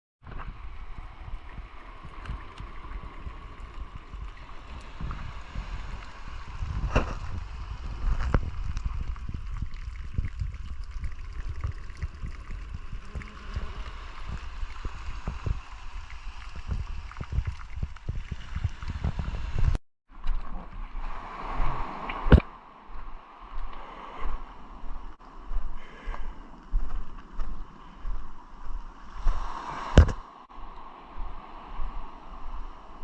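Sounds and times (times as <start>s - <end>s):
wind on microphone: 0.2s - 19.8s, 20.6s - 33.0s
water sloshing and splashing: 0.3s - 25.0s.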